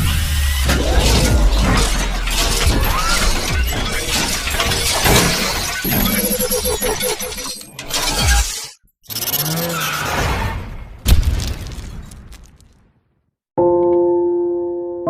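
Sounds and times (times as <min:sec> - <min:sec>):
steady low drone: 0:00.3 - 0:04.7
shattering crashing sound effects: 0:00.5 - 0:06.9.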